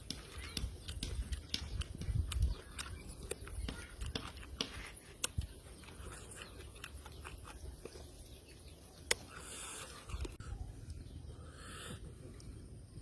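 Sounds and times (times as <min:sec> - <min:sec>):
man chewing with mouth smacks: 0:00.1 - 0:08.2, 0:09.0 - 0:10.4.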